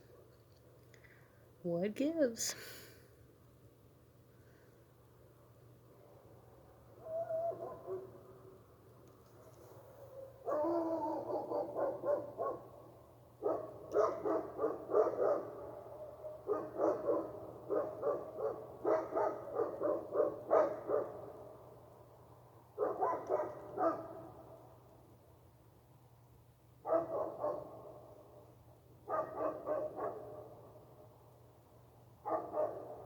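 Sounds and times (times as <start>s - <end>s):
dogs barking: 10.4s - 12.7s, 13.4s - 21.4s, 22.8s - 24.3s, 26.9s - 27.9s, 29.1s - 30.5s, 32.2s - 33.0s.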